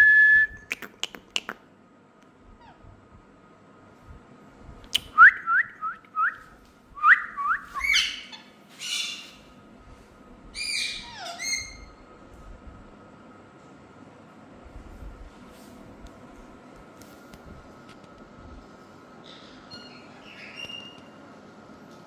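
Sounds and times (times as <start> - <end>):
parrots chirping and squawking: 7.8 - 9.6, 10.6 - 12.0, 19.2 - 21.1.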